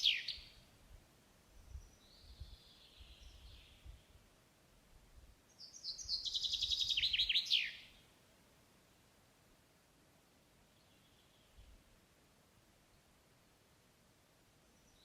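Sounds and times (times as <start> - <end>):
songbird singing: 0.0 - 0.7, 1.4 - 4.3, 5.4 - 8.2, 10.6 - 11.9, 14.6 - 15.0.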